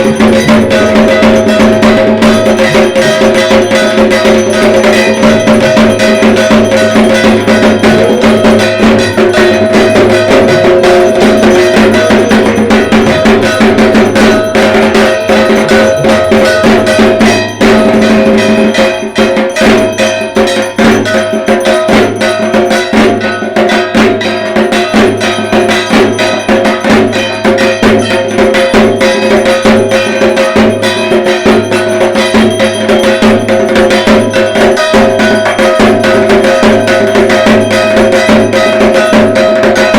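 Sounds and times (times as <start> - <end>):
drums fast rhythm: 0.0 - 39.9
metal gong clanging: 0.0 - 39.9.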